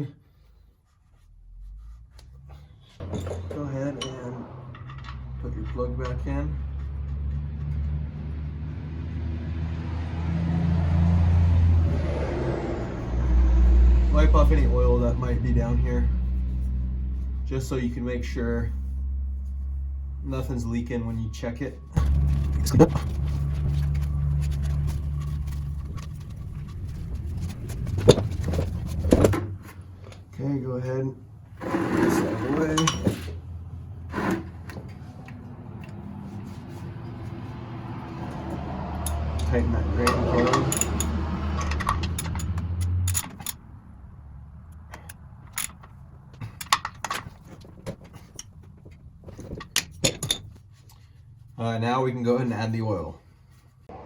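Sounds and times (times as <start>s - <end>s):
low hum: 0.3s - 30.3s
metal tools clinking: 3.0s - 6.3s, 32.6s - 33.4s, 39.1s - 43.6s, 44.8s - 48.7s, 49.3s - 51.0s.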